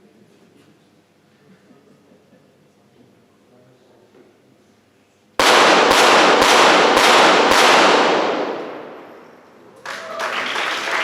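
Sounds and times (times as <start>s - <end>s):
pistol shots ringing: 5.4s - 9.5s
audience applause: 9.8s - 11.0s.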